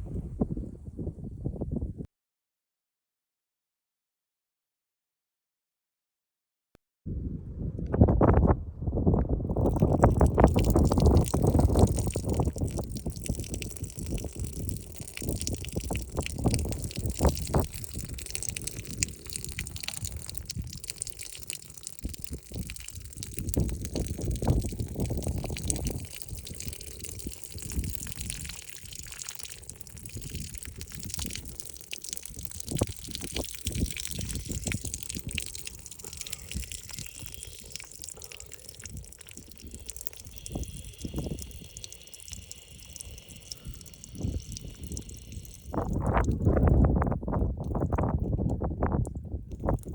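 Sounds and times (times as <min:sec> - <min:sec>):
wind rumbling on microphone: 0:00.0 - 0:02.1, 0:07.1 - 0:49.9
woman urinating on ground: 0:09.5 - 0:49.9.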